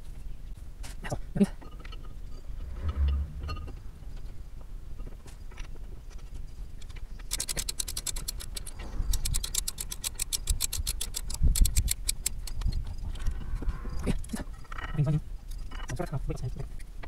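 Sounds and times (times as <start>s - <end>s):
ratchet wrench clicking: 7.2s - 12.8s.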